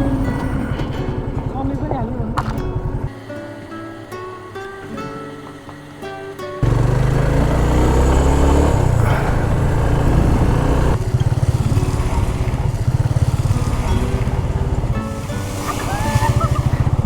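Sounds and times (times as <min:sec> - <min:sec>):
motorcycle engine accelerating: 0:00.0 - 0:03.2, 0:06.6 - 0:17.0
engine pulsing beat: 0:00.0 - 0:03.5, 0:06.6 - 0:17.0.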